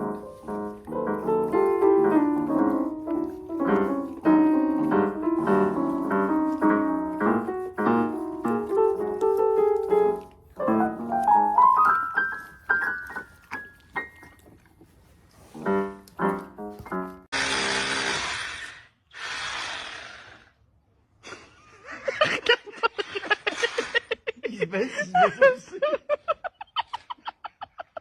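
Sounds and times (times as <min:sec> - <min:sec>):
piano music: 0:00.0 - 0:14.4, 0:15.5 - 0:17.3.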